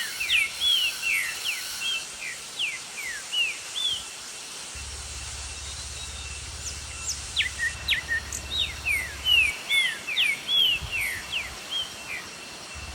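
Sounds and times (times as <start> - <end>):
steady outdoor hiss: 0.0 - 12.9
birds chirping: 4.8 - 12.9.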